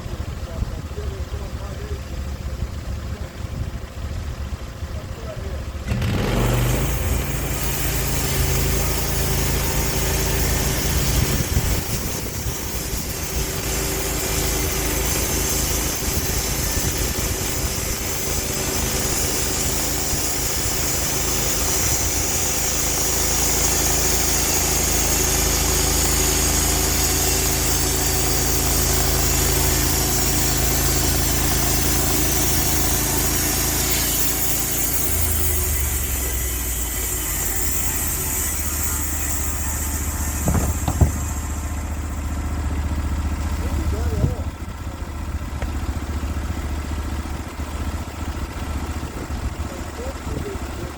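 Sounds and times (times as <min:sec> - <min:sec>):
sawmill engine under load: 0:00.0 - 0:50.9
saw blade hissing through log: 0:05.9 - 0:43.6.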